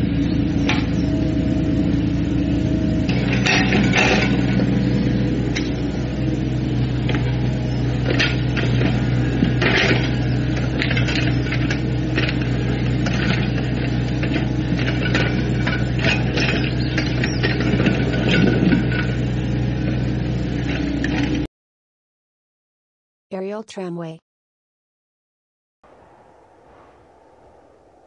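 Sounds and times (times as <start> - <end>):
excavator diesel engine: 0.0 - 21.5.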